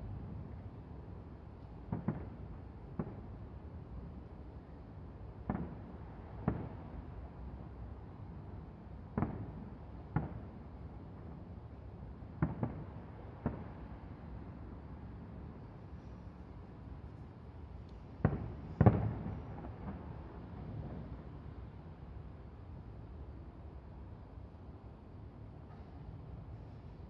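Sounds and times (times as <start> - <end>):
distant fireworks booming: 5.4 - 7.2, 9.1 - 10.6, 12.3 - 14.3, 18.2 - 21.3.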